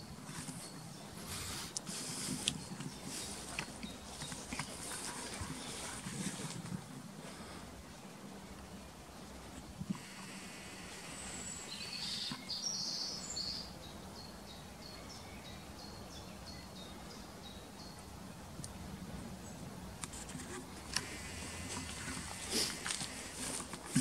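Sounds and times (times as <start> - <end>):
wild bird singing: 0.0 - 6.7, 10.0 - 19.7, 20.6 - 24.0
rustling undergrowth: 0.0 - 24.0.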